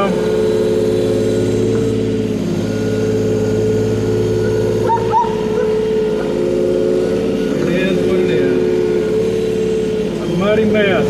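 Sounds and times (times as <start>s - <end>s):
diesel engine running: 0.0s - 11.0s
wavering high-pitched sound: 2.6s - 9.8s.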